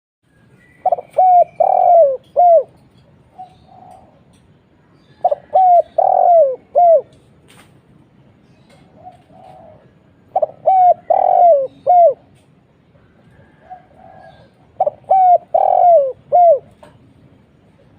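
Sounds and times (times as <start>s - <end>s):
dove cooing: 0.8s - 4.3s, 5.2s - 7.2s, 8.8s - 12.4s, 13.0s - 17.0s.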